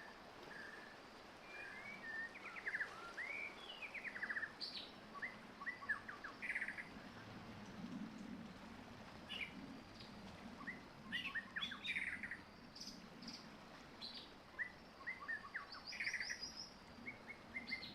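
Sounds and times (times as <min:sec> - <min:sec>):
songbird chirping and trilling: 0:01.5 - 0:07.0, 0:09.3 - 0:17.9.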